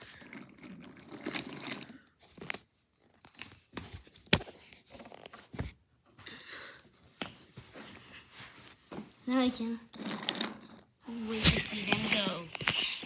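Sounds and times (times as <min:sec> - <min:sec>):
soft rustling: 0:04.6 - 0:10.1
toys clicking and knocking: 0:09.9 - 0:13.0.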